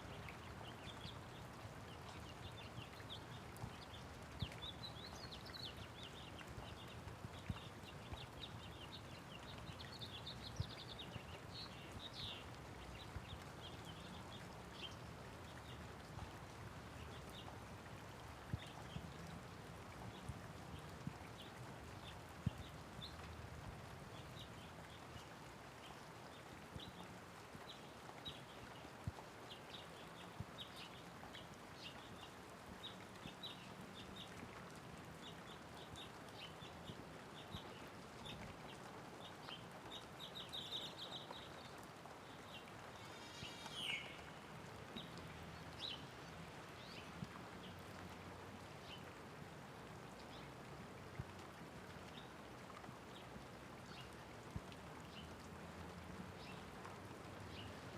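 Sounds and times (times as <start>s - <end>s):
light rain falling: 0.0s - 57.9s
small birds chirping: 0.1s - 17.6s, 24.1s - 49.2s.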